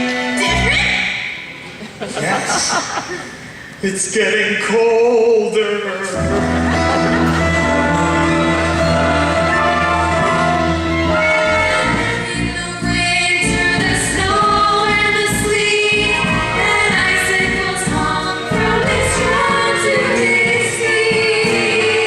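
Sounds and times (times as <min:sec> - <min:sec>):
instrumental accompaniment: 0:06.1 - 0:22.0
voices singing together: 0:06.2 - 0:22.0.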